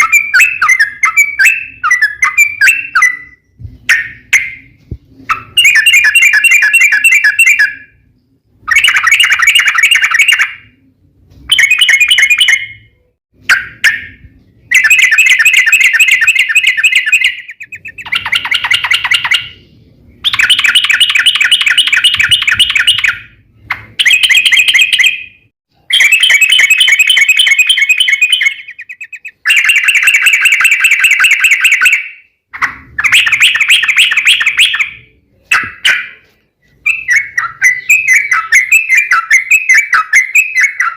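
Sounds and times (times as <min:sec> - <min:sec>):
bird singing rapid chattering song: 0:00.0 - 0:10.7, 0:11.5 - 0:12.9, 0:13.6 - 0:32.2, 0:33.0 - 0:40.9.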